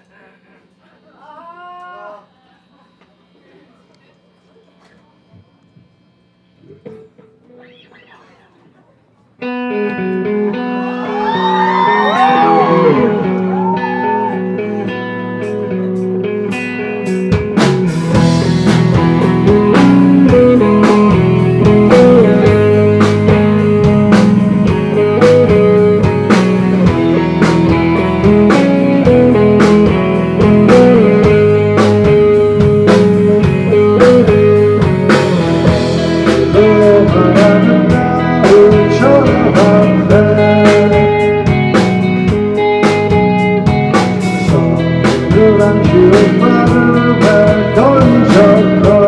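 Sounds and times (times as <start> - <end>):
guitar line bending pitch: 9.4 - 49.0
rock band playing live: 9.4 - 49.0
drums steady beat: 11.7 - 49.0.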